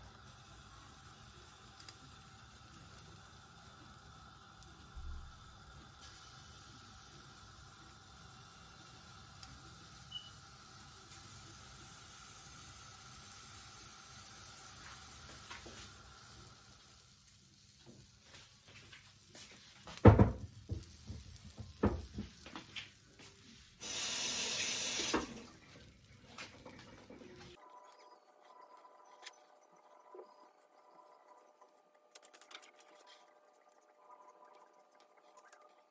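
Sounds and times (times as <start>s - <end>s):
rush of hissing: 23.8s - 25.4s.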